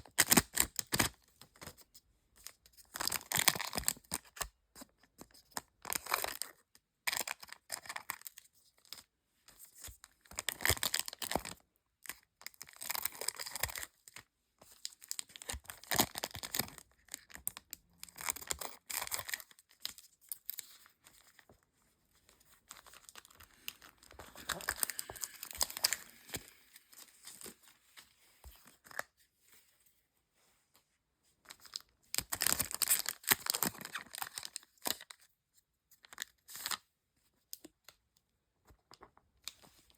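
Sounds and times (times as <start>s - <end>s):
card packs tearing open: 22.7s - 27.5s
foil wrappers crinkling: 22.7s - 27.5s.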